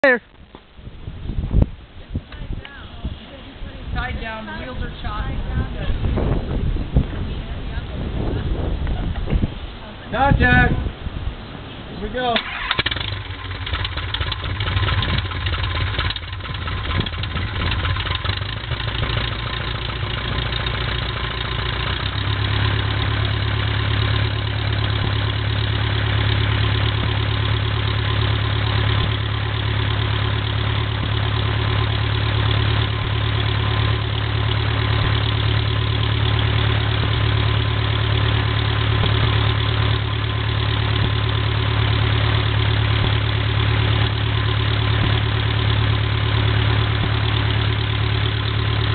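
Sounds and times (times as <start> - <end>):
aircraft engine idling: 12.2 - 48.9.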